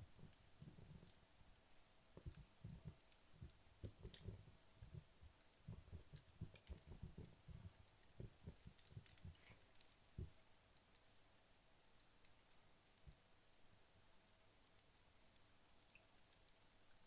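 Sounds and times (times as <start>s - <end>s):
fire crackling and popping: 2.1s - 11.1s.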